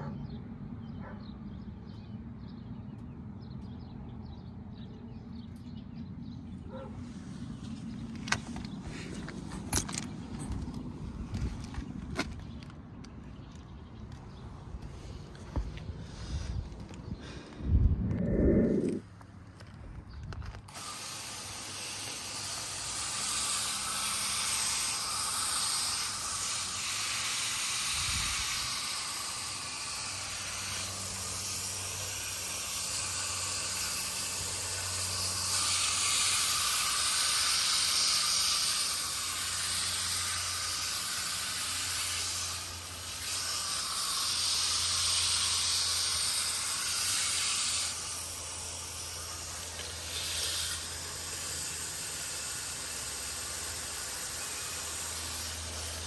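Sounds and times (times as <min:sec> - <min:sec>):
low motor hum: 0:00.0 - 0:21.8
air conditioner air rushing: 0:20.6 - 0:56.0.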